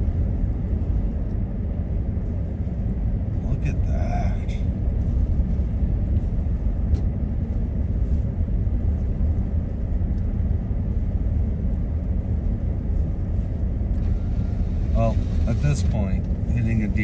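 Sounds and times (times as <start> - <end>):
vehicle road rumble inside: 0.0 - 17.0.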